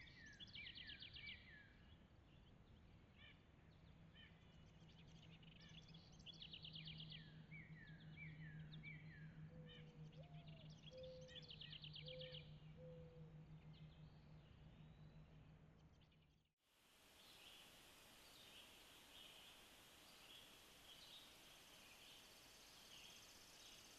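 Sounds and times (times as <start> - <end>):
songbirds trilling: 4.6 - 15.3, 18.2 - 23.9
steady low hum: 4.6 - 16.4
steady hiss: 16.7 - 23.9.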